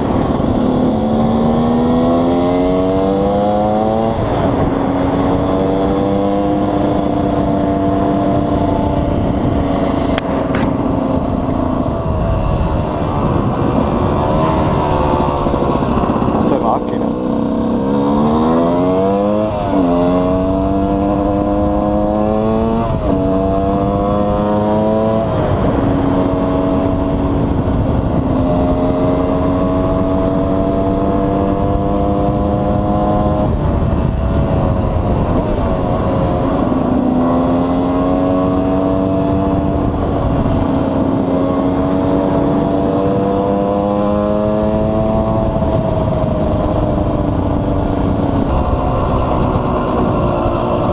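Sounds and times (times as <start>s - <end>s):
motorcycle engine revving: 0.0s - 50.9s
wind noise: 0.0s - 50.9s.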